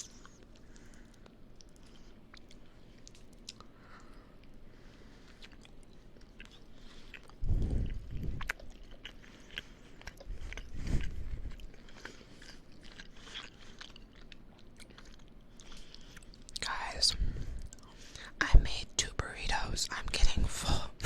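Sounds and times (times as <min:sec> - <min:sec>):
chewing and biting food: 0:00.0 - 0:16.7.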